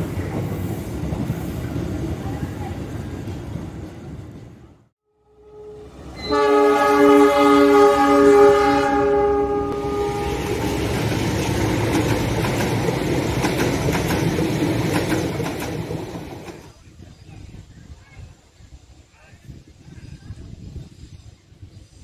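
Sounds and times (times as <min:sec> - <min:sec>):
passing train rumble: 0:00.0 - 0:17.7
train horn chord: 0:05.1 - 0:10.7
wheels clacking over rail joints: 0:09.8 - 0:16.7.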